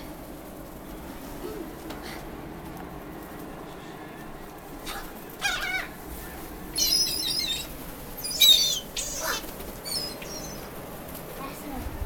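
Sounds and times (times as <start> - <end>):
seagulls calling: 5.4 - 6.0, 6.7 - 10.8.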